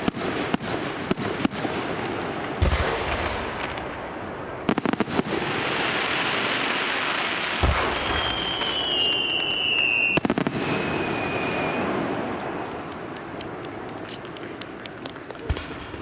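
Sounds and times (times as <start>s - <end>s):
crackling hiss of fireworks: 0.0s - 16.0s
firework shells booming: 0.0s - 16.0s
high firework whistle: 6.3s - 12.9s.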